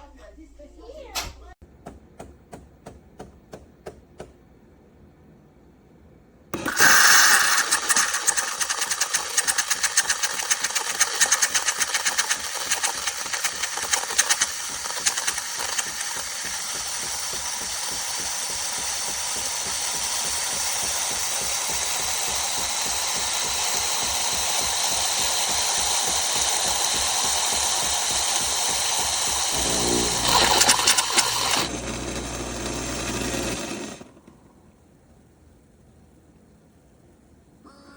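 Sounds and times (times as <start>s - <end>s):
espresso machine hissing whir: 6.5s - 34.6s
espresso machine rattling pulse: 6.6s - 34.4s.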